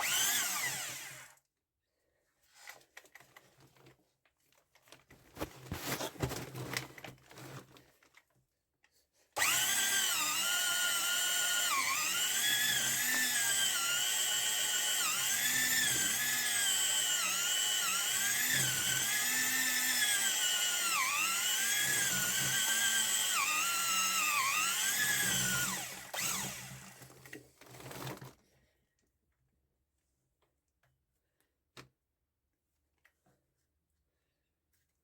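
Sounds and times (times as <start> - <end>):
electric drill whining: 0.0 - 1.4, 9.4 - 27.1.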